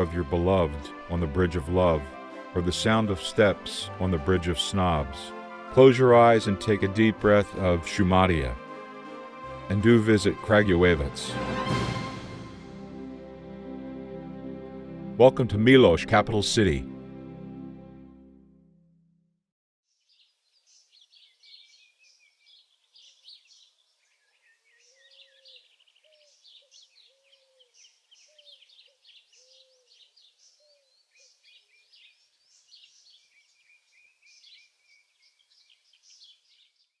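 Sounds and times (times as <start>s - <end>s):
background music: 0.0s - 19.1s
small birds chirping: 19.9s - 37.0s
low rounded bird call: 20.0s - 37.0s.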